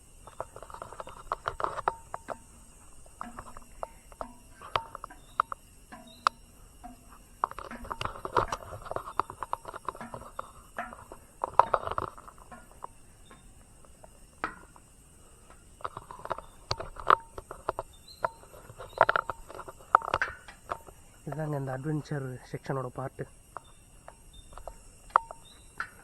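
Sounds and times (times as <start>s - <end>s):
footsteps climbing: 0.0s - 22.5s
knocks and scrapes: 0.3s - 14.8s, 15.7s - 21.6s.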